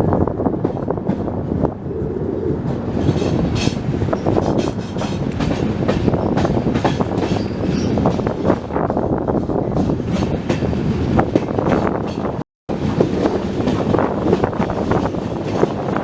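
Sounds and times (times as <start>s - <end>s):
train wheels clattering: 2.6s - 16.0s.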